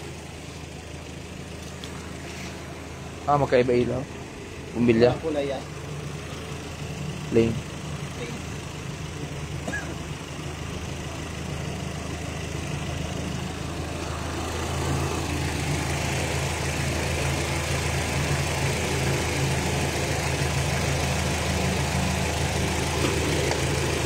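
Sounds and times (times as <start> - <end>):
vehicle engine idling: 0.0 - 24.0.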